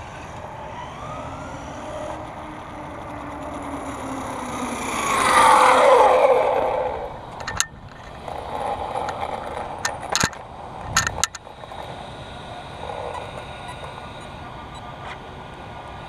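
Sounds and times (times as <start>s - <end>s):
motor and tyre sound: 0.0s - 16.0s
rc truck motor whine: 0.0s - 16.0s
sharp clicks or knocks: 9.0s - 11.4s.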